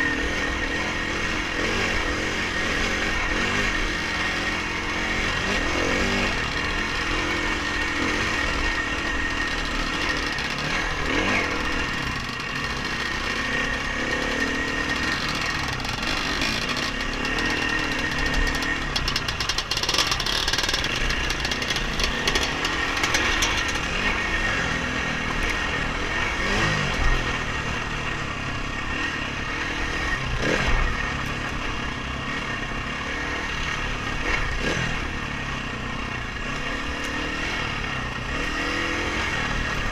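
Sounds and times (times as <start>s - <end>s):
dirt bike engine revving: 0.0s - 39.9s
sharp knocks and rattles: 7.7s - 24.4s.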